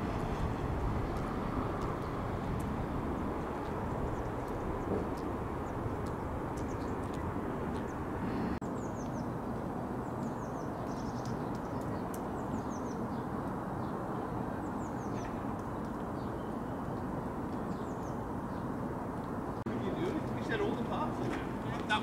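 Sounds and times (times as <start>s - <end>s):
steady low rumble: 0.0s - 8.6s
small birds chirping: 1.1s - 9.4s, 10.0s - 21.2s.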